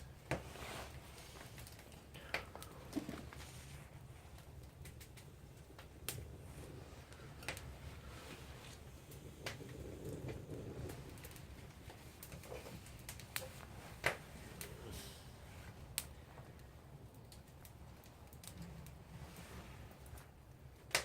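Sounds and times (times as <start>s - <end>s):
low steady rumble: 0.0s - 20.8s
campfire crackling: 0.0s - 21.0s
sharp pops and clicks: 4.4s - 6.3s.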